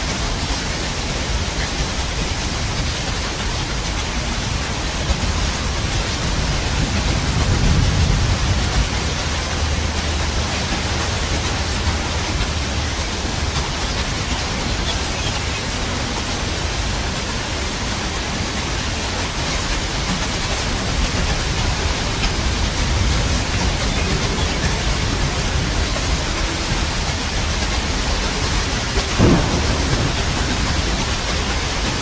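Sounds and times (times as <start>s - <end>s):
heavy rain hiss: 0.0s - 32.0s
low rumble: 4.4s - 32.0s.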